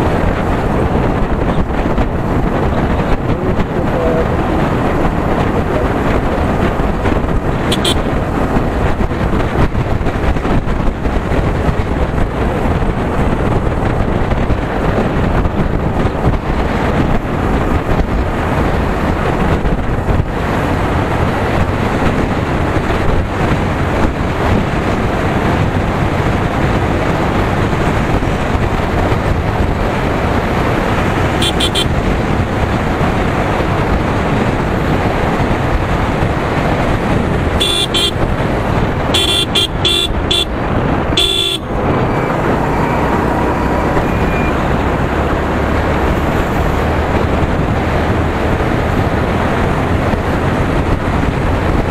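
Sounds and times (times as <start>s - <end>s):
motorcycle engine running: 0.0s - 46.2s
wind and road rush: 0.0s - 51.9s
vehicle horn toots: 7.7s - 8.1s, 31.4s - 31.9s, 37.6s - 38.2s, 39.1s - 40.6s, 41.2s - 42.2s.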